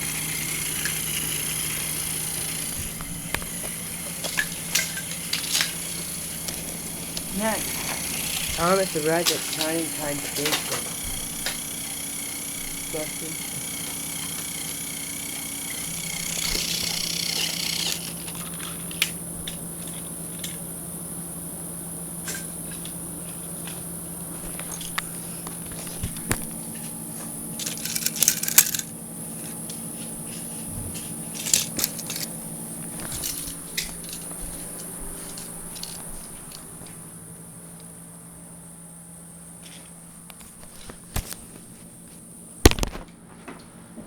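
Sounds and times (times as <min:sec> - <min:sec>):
toy train clicking over track joints: 0:00.0 - 0:20.6, 0:24.4 - 0:36.7
toy train motor hum: 0:00.0 - 0:38.3, 0:39.2 - 0:42.8.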